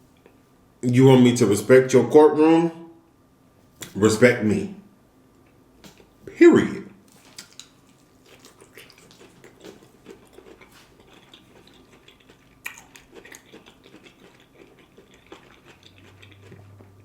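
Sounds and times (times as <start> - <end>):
chewing and mouth sounds: 3.7 - 4.0, 5.8 - 6.3, 7.1 - 17.0.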